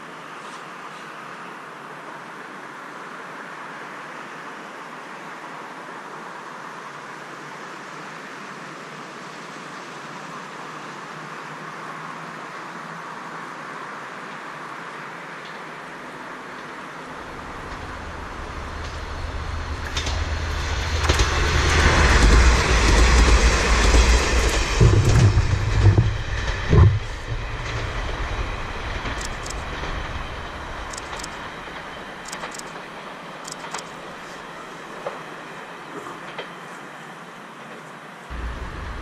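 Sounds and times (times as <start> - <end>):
train wheel noise: 16.4 - 39.0
diesel railcar engine rumble: 16.8 - 39.0
sharp knock: 24.4 - 27.4.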